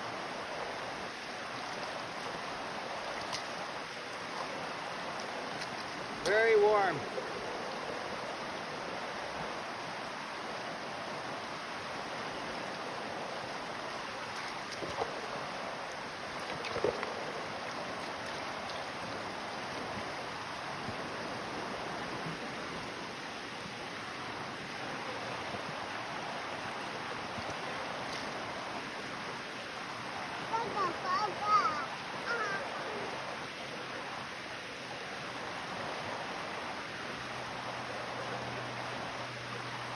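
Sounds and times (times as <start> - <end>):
creek water flowing: 0.0 - 39.9
small splashes: 3.0 - 6.4, 14.2 - 15.3, 16.3 - 17.2.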